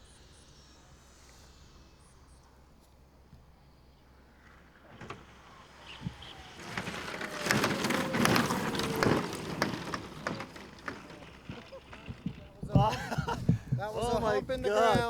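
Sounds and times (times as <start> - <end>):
landing gear knocks and rattles: 4.9 - 15.0.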